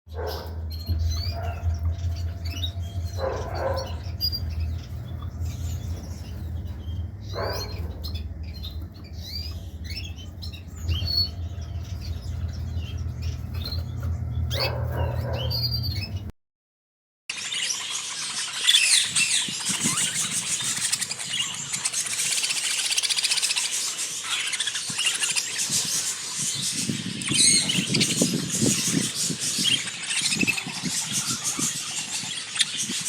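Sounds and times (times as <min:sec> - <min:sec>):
cage birds chirping and twittering: 0:00.1 - 0:16.3, 0:17.3 - 0:33.0
harsh bird calls: 0:00.1 - 0:16.3, 0:17.4 - 0:33.0
steady low hum: 0:00.1 - 0:16.3.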